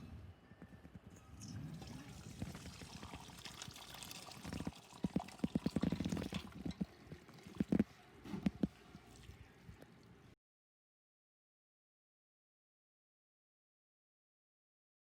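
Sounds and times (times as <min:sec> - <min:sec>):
liquid pouring and sloshing: 0:01.3 - 0:10.2.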